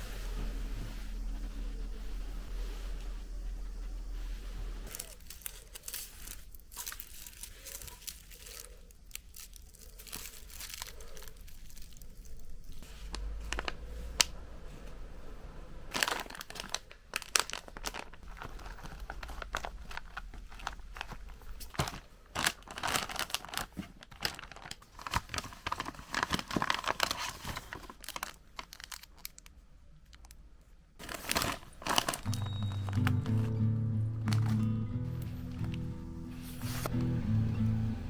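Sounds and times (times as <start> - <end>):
low hum: 0.0 - 8.6, 32.3 - 38.0
packaging crinkling: 4.1 - 14.3, 15.9 - 30.4, 31.0 - 37.0.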